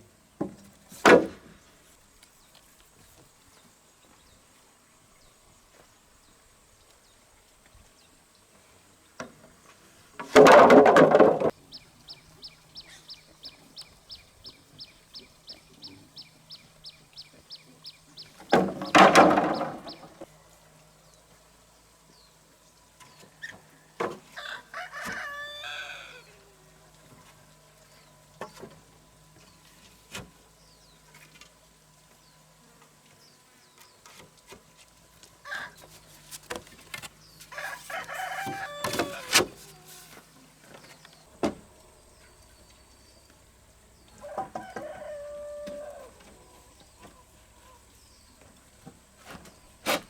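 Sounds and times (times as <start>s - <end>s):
rooster crowing: 24.3s - 26.4s, 35.4s - 35.8s, 37.5s - 39.6s, 44.2s - 46.6s.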